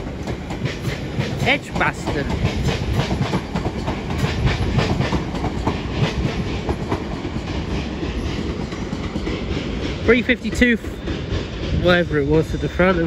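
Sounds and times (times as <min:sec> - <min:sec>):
electric train rumbling past: 0:00.0 - 0:13.0.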